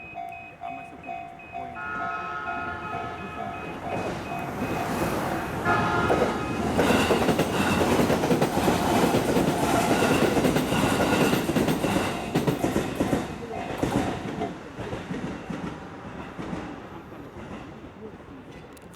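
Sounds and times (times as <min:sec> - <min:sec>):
level crossing alarm bell: 0:00.0 - 0:08.1
train passing: 0:00.0 - 0:18.7
train horn: 0:01.7 - 0:07.8
wheels clacking over rail joints: 0:03.0 - 0:17.9.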